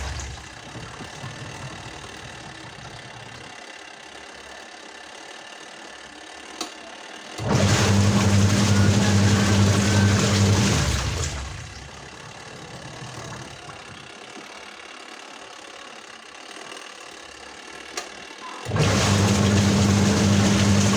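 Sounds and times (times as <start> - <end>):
washing machine motor running: 0.0 - 20.9.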